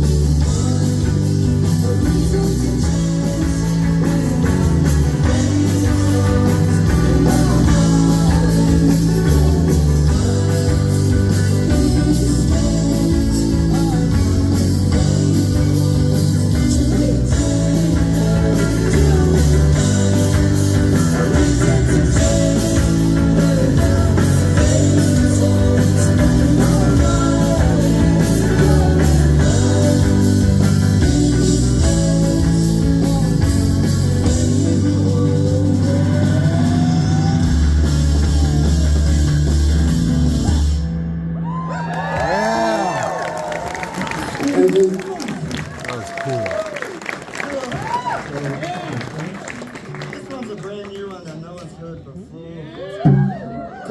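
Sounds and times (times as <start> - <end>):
rock band playing live: 0.0 - 50.5.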